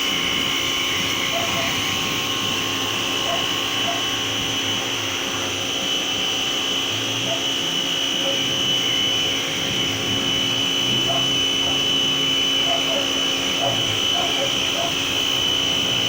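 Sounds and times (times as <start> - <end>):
pressure washer spraying water: 9.5 - 16.0.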